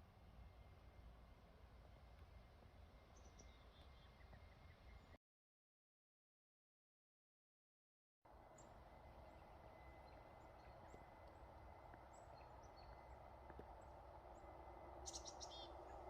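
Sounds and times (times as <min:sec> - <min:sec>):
distant traffic rumble: 0:08.3 - 0:16.0
small bird chirps: 0:15.0 - 0:16.0.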